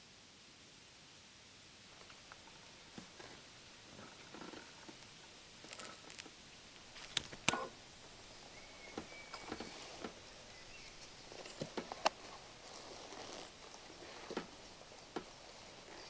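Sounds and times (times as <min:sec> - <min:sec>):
faint steady hiss: 0:00.0 - 0:16.0
sharp clicks and knocks: 0:05.7 - 0:07.8.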